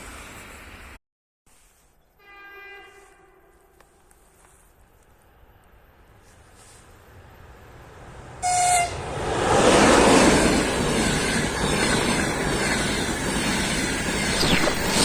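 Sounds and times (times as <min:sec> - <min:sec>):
train wheel and rail noise: 0:00.0 - 0:01.0, 0:03.0 - 0:15.0
train horn blast: 0:02.2 - 0:03.8, 0:08.4 - 0:09.0.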